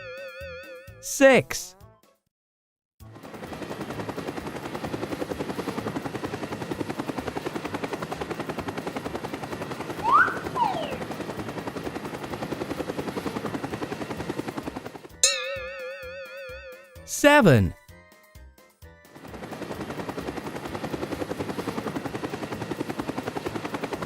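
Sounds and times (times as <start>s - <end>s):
whistle-like glides: 10.0s - 11.1s.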